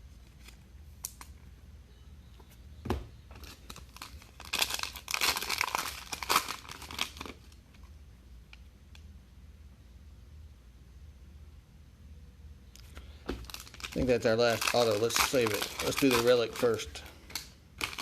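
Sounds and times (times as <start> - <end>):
plastic wrapper tearing and crumpling: 3.4 - 7.6, 13.4 - 18.0.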